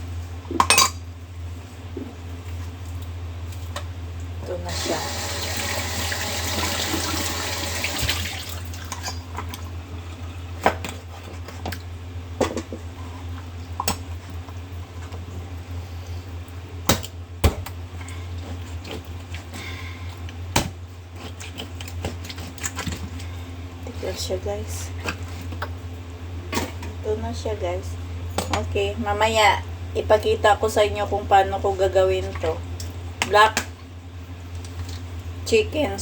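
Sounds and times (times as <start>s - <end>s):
steady low hum: 0.0s - 5.1s, 8.2s - 36.0s
pots and utensils clinking: 0.6s - 1.0s
water running: 4.6s - 10.6s.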